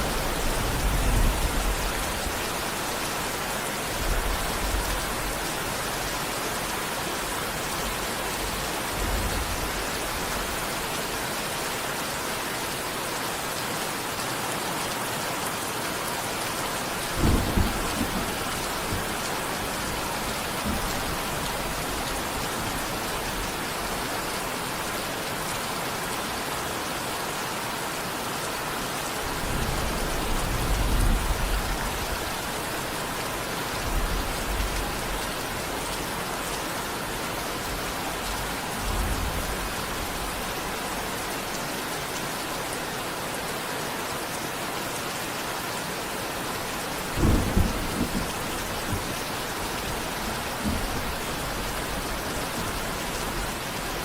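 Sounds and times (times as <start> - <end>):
thunder rumbles: 0.0 - 3.3, 16.8 - 24.2, 29.2 - 32.5, 46.7 - 54.0
heavy rain: 0.0 - 54.0.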